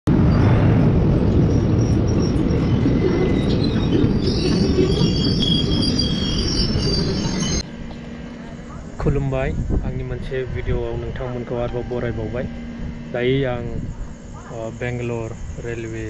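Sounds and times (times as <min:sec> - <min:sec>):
train wheels rumbling and clattering: 0:00.1 - 0:07.6
high metallic squealing: 0:01.2 - 0:07.6.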